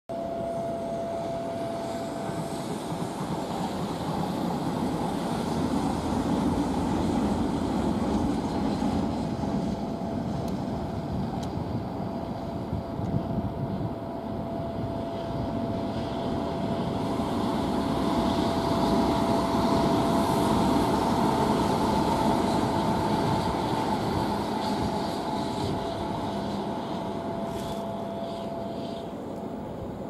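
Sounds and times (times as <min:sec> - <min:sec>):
distant train rumble: 0:00.1 - 0:30.0.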